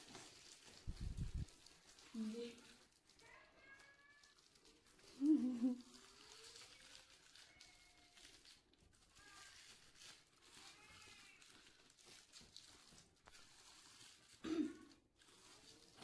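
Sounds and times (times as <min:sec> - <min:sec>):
faint high-pitched sounds: 0:02.2 - 0:11.7.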